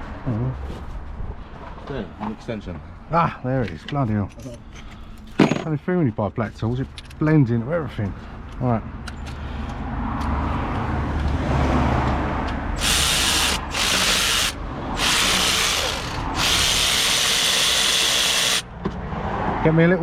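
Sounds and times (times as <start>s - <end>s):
loud power tool bursts: 12.8s - 18.6s
power tool motor running: 12.8s - 18.6s.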